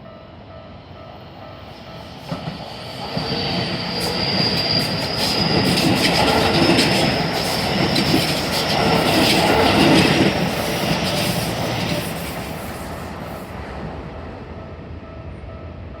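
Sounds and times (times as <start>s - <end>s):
train wheels clattering over joints: 4.5s - 12.1s.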